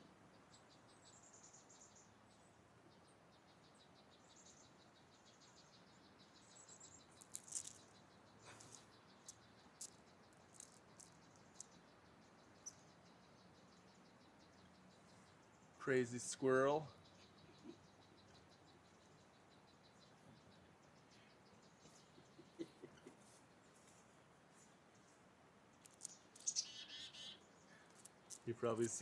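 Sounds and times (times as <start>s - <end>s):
squirrel chattering: 25.9s - 29.0s.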